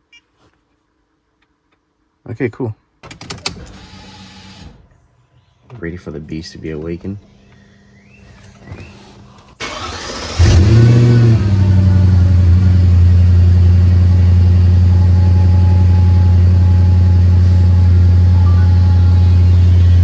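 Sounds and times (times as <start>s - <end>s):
car engine starting and idling: 8.0s - 20.0s
starter motor cranking: 8.4s - 20.0s.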